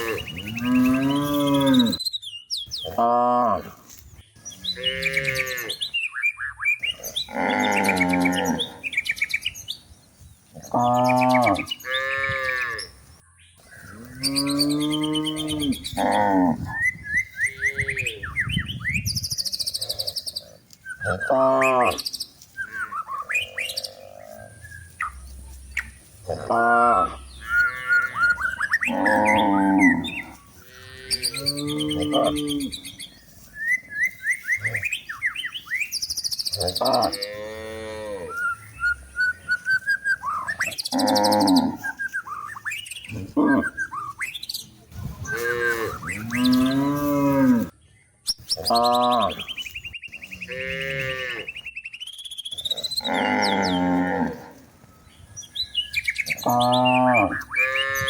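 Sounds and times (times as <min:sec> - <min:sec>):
cows mooing: 0:00.0 - 0:02.0, 0:04.6 - 0:05.8, 0:07.0 - 0:08.9, 0:10.6 - 0:12.9, 0:13.9 - 0:16.8, 0:21.0 - 0:24.5, 0:26.2 - 0:33.0, 0:36.5 - 0:39.7, 0:40.9 - 0:42.0, 0:45.2 - 0:47.7, 0:50.3 - 0:51.5, 0:52.7 - 0:54.6, 0:56.2 - 0:58.0
small birds chirping: 0:00.0 - 0:58.0.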